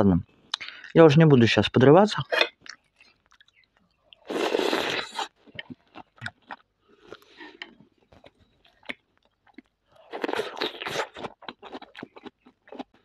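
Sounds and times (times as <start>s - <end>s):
crunching and chewing salad: 2.3s - 13.0s
chewing clicks and smacks: 2.4s - 4.3s, 5.4s - 13.0s.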